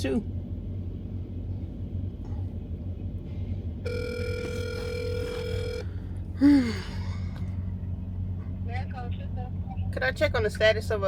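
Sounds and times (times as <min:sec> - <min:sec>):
low steady hum: 0:00.0 - 0:11.0
telephone ringback tone: 0:03.9 - 0:05.9.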